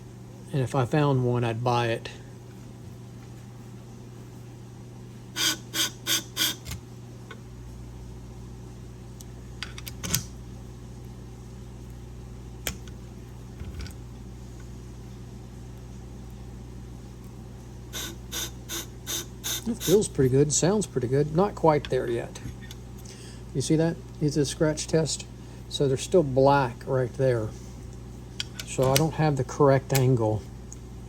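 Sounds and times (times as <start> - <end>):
sharpening machine humming: 5.3 - 6.8, 17.9 - 22.8.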